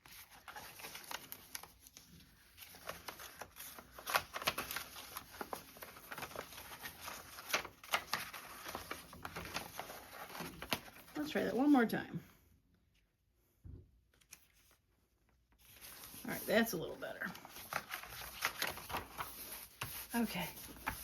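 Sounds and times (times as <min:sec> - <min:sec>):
thin paper rustling and crinkling: 0:00.0 - 0:11.2, 0:15.6 - 0:21.0.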